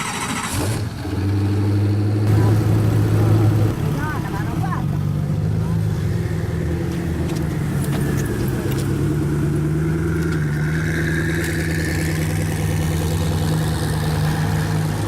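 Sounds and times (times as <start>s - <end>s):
road and tyre noise: 0.0s - 15.0s
low hum: 5.2s - 15.0s.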